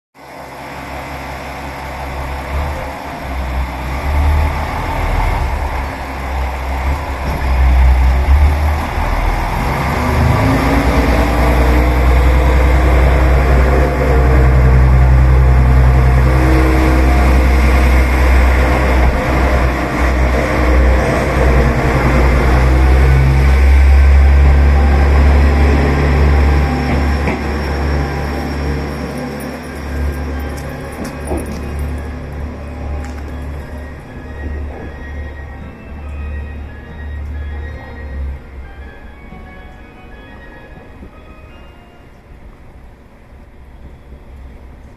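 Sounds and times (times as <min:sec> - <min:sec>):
diesel railcar engine rumbling: 0:00.2 - 0:44.9.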